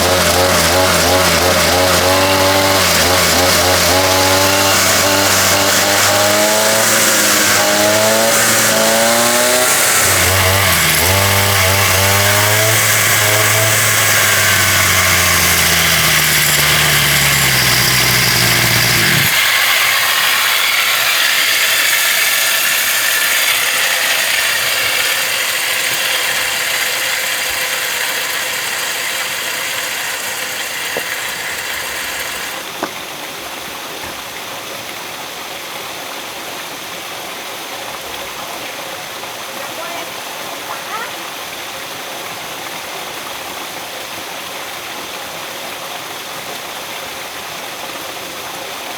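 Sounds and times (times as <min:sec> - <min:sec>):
small engine running: 0:00.0 - 0:32.9.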